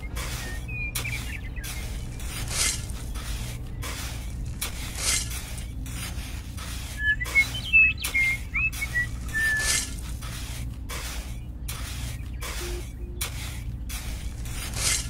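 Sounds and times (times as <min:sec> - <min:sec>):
small shovel scraping sand: 0:00.0 - 0:15.0
bird whistled chirps: 0:00.4 - 0:01.9, 0:07.0 - 0:09.8.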